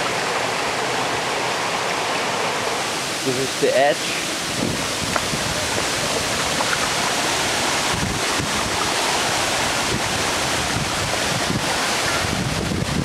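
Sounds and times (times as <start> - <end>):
waterfall roaring: 0.0 - 13.0
wind buffeting microphone: 4.4 - 13.0.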